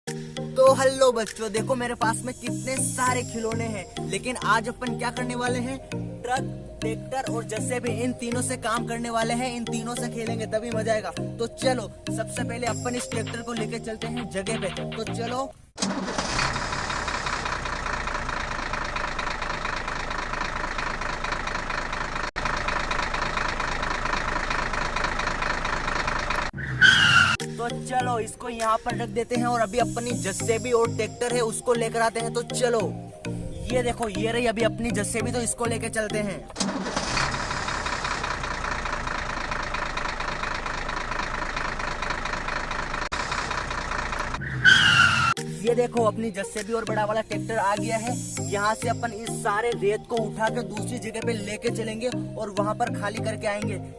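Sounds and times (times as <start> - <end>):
tractor engine running: 15.8 - 27.5, 35.9 - 45.5.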